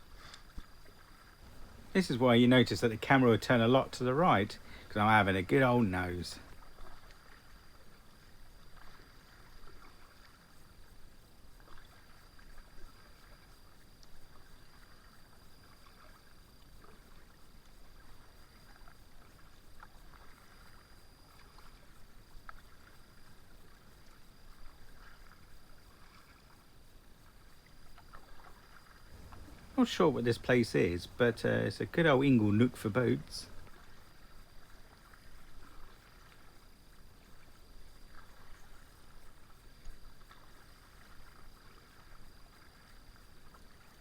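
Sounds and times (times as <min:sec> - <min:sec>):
kayak paddle dipping in water: 0:00.0 - 0:10.5, 0:27.3 - 0:44.0.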